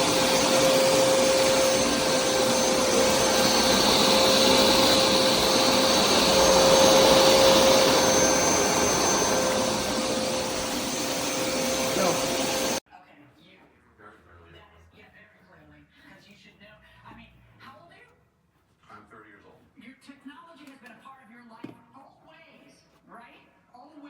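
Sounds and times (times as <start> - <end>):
carpet cleaner motor whining: 0.0 - 12.8.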